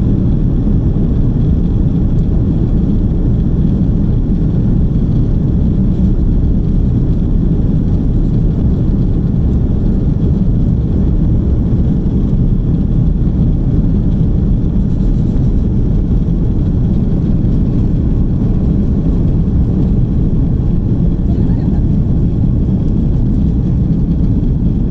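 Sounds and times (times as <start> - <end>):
aircraft cabin engine rumble: 0.0 - 24.9
air rushing past fuselage: 7.6 - 24.9.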